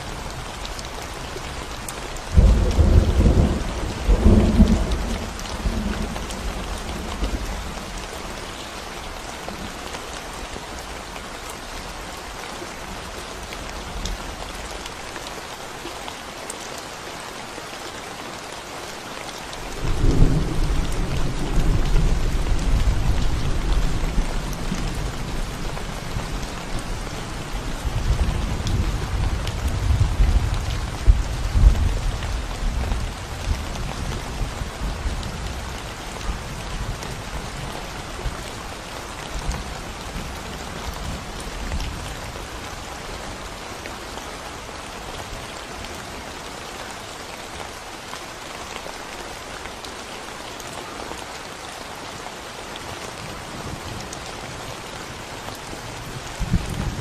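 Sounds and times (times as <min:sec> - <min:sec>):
rain on concrete road: 0:00.0 - 0:57.0
rolling thunder: 0:02.4 - 0:07.4.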